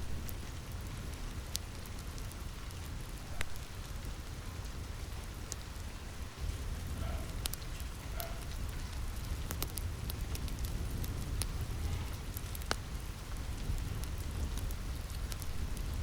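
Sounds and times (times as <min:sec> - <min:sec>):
rain on a roof: 0:00.0 - 0:16.0
wood fire crackling and popping: 0:00.0 - 0:16.0.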